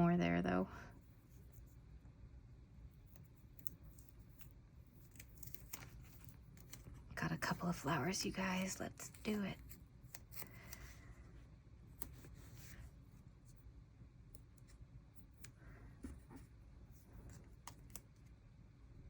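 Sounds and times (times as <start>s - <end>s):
paper rustling: 5.0s - 7.6s.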